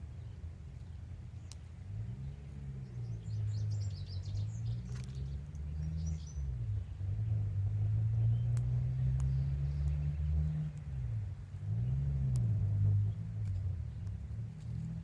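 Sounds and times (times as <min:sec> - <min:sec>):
bird chirps: 0:00.0 - 0:11.1
engine hum changing pitch: 0:02.0 - 0:15.0.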